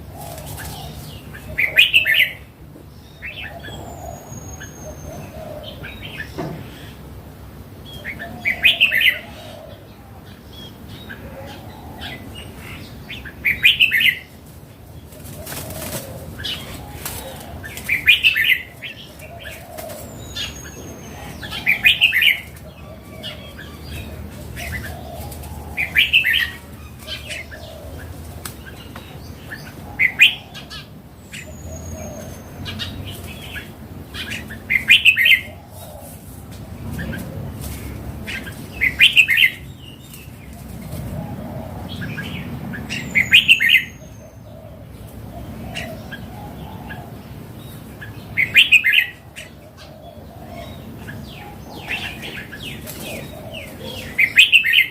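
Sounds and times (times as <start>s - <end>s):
bulbul singing: 38.2s - 40.4s, 41.9s - 54.9s.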